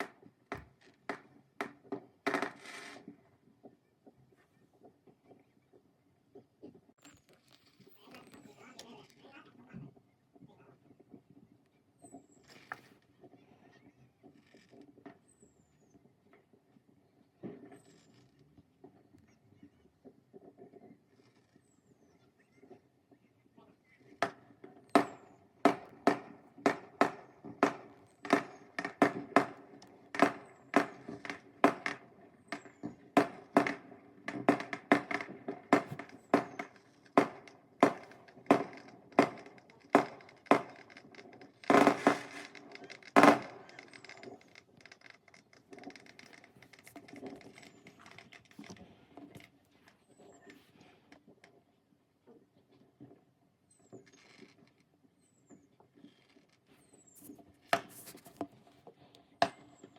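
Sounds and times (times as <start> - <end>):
firework bangs: 2.2 - 3.2, 25.0 - 45.0
firework crackling: 25.7 - 47.7.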